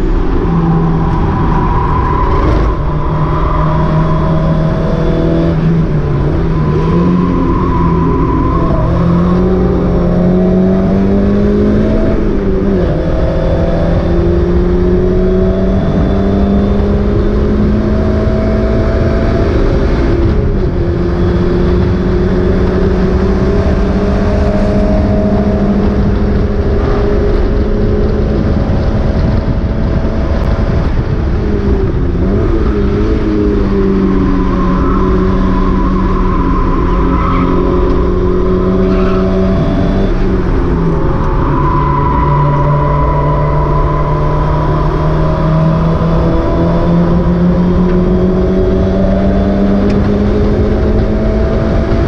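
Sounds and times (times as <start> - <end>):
car engine under load: 0.0 - 52.0
wind and road noise: 0.0 - 52.0.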